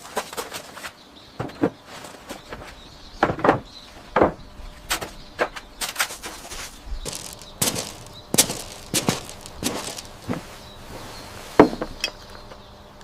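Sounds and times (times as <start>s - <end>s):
knocks and thuds of tools: 3.2s - 5.6s, 7.1s - 10.5s, 11.6s - 12.2s.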